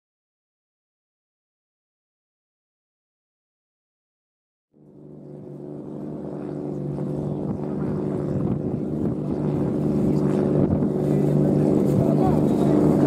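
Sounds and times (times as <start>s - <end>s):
car engine running at low revs: 4.8s - 13.0s.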